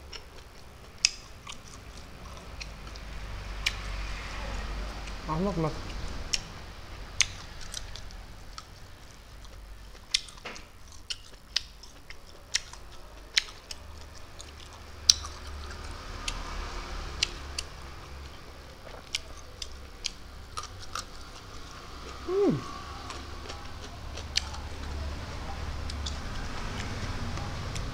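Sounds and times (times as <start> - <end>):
mouth clicks and smacks: 0.0 - 3.8
person chewing: 0.0 - 4.0, 5.9 - 6.5, 7.2 - 25.0, 25.8 - 27.8.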